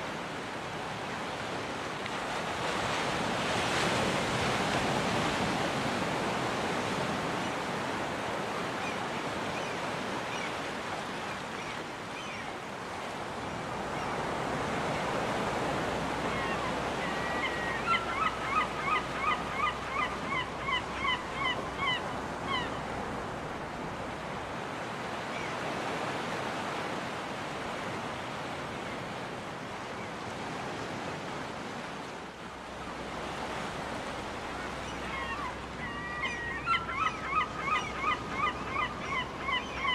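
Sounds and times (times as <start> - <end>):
surf washing onto beach: 0.0 - 9.7
gull calling: 16.3 - 22.8, 34.7 - 39.9.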